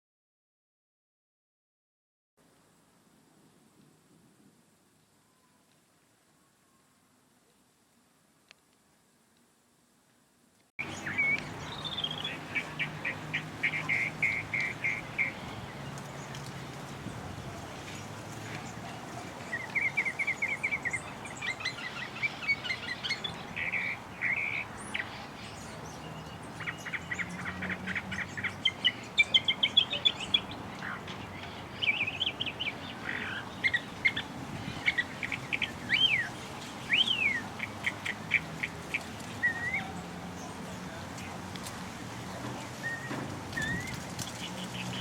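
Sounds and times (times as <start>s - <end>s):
birds chirping and trilling: 10.8s - 41.4s, 42.8s - 45.0s
sliding whistled bird notes: 42.8s - 45.0s.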